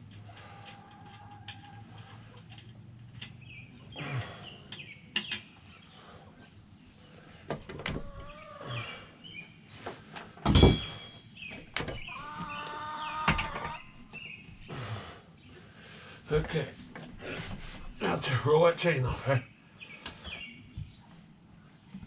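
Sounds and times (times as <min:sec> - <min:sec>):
small birds chirping: 0:00.0 - 0:10.4, 0:11.2 - 0:22.0
clicks and knocks of hand tools: 0:04.2 - 0:05.5
loud metallic clank: 0:10.5 - 0:11.2.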